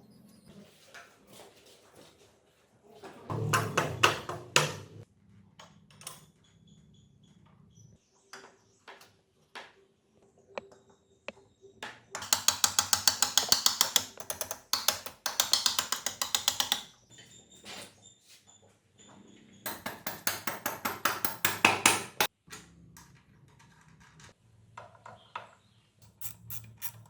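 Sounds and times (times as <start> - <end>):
fast metallic clicking: 12.2 - 16.9
small metal parts clinking: 26.0 - 27.0.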